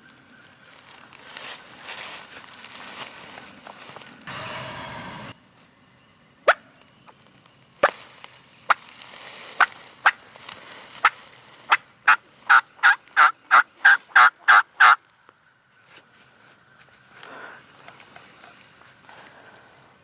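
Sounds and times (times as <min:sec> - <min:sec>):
turkey clucking: 0:11.7 - 0:15.0
turkey yelping: 0:11.7 - 0:15.0.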